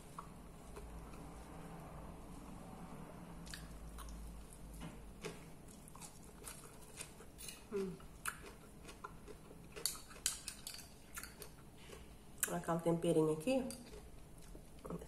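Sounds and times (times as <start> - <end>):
lettuce crunching chewing: 3.4 - 12.5, 13.8 - 15.0.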